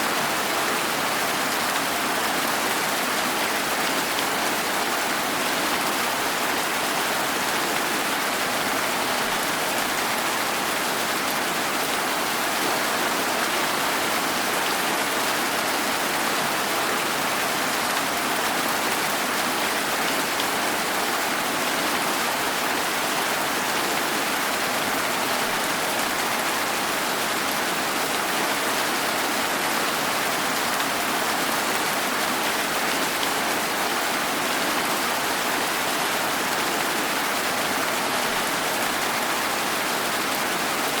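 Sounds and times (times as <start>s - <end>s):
steady rain: 0.0s - 41.0s.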